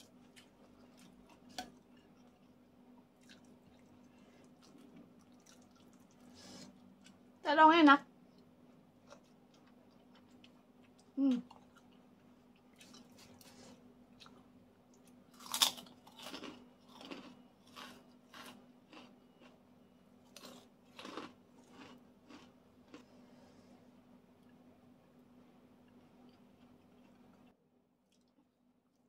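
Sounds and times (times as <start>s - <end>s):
person chewing food: 0.0s - 7.3s, 8.3s - 24.8s, 25.4s - 29.0s
crunchy bites: 15.3s - 19.6s, 20.3s - 23.1s.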